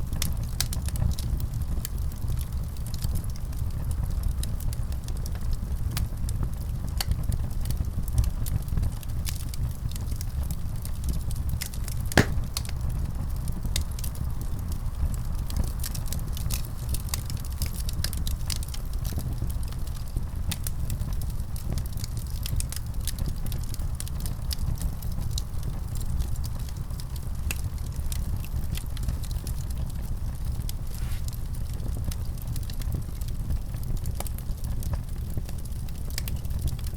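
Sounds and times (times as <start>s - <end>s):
wood fire crackling: 0.1s - 36.9s
loud fire pop: 12.1s - 12.7s.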